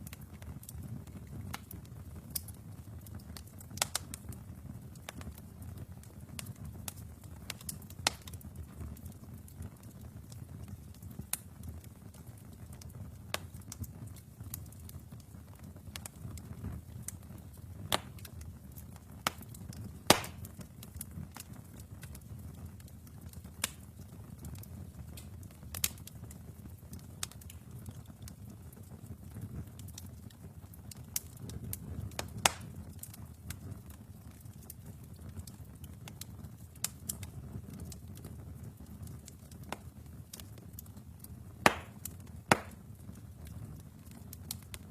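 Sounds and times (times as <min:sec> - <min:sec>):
fire crackles and pops: 0:00.0 - 0:44.9
low rumble of flames: 0:00.0 - 0:44.9.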